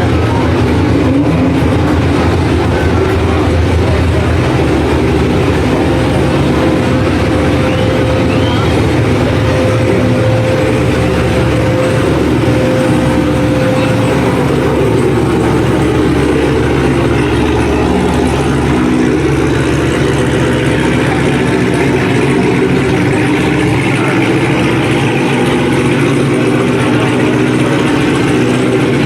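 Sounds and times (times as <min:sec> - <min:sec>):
car engines idling: 0:00.0 - 0:29.0.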